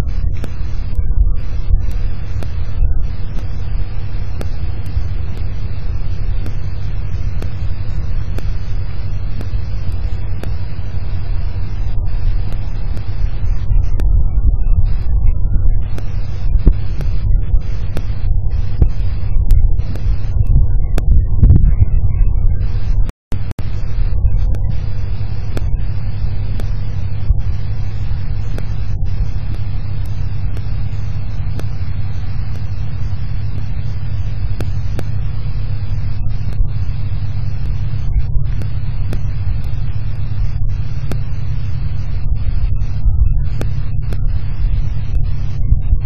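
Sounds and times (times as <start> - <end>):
sharp ticks: 0.0 - 21.6, 22.7 - 46.0
wind and rain rumble: 10.9 - 23.0.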